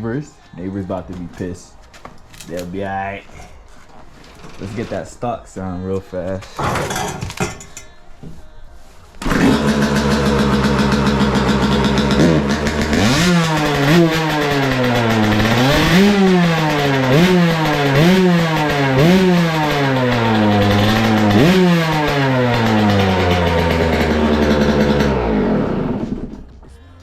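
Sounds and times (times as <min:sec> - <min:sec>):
dirt bike engine idling and revving: 0:09.2 - 0:26.5.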